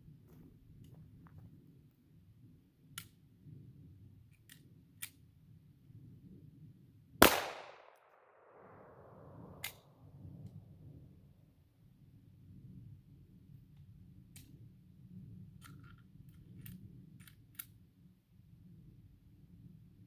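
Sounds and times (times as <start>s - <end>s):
pistol shot with echo: 7.2s - 9.6s.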